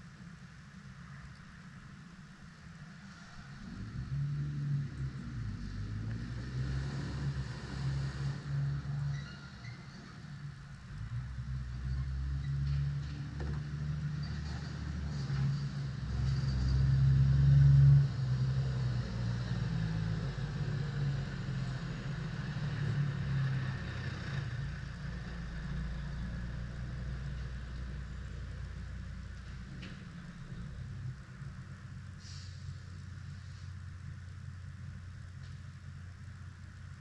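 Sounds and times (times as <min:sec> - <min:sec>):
vehicle engine rumbling: 0:00.0 - 0:37.0.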